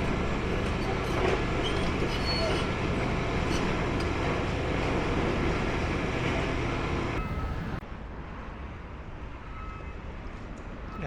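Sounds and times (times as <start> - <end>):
excavator rumbling: 0.0 - 7.8.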